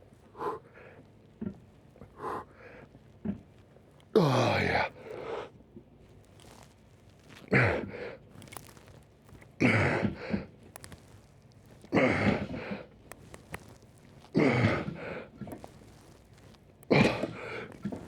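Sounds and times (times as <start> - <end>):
man grunting: 4.2 - 4.8.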